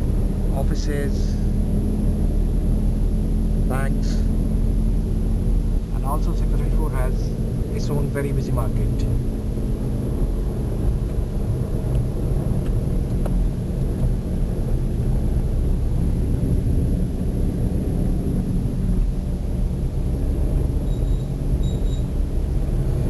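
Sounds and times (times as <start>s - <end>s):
road noise: 0.0s - 23.0s
vehicle engine rumble: 0.0s - 23.0s.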